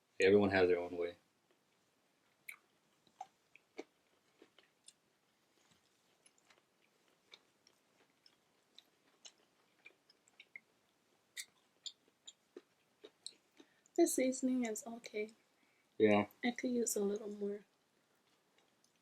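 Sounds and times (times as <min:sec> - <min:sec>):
chewing food: 0:01.5 - 0:14.0, 0:17.7 - 0:19.0.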